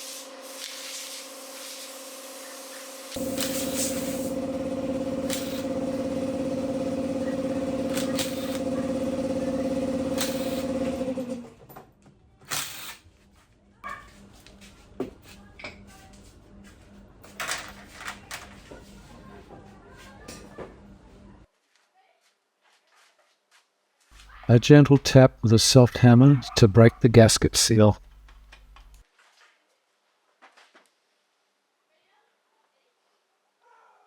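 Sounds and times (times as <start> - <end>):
electric power tool running: 0.0 - 11.6.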